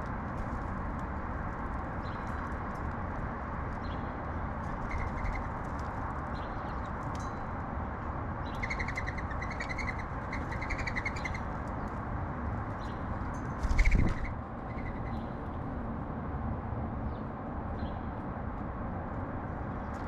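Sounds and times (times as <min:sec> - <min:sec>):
steady background noise: 0:00.0 - 0:20.0
sparrows chirping: 0:04.8 - 0:05.6, 0:06.3 - 0:07.3, 0:08.4 - 0:11.9, 0:12.7 - 0:15.4.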